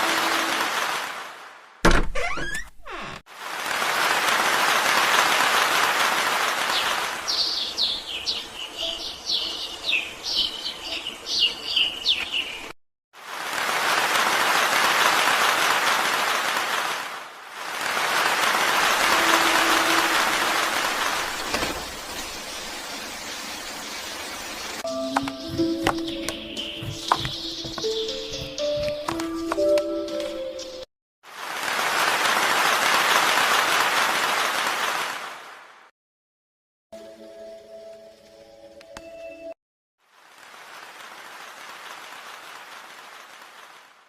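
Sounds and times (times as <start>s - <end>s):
rain hiss: 0.0s - 1.6s, 3.3s - 8.7s, 13.2s - 24.8s, 31.3s - 35.8s, 40.0s - 44.0s.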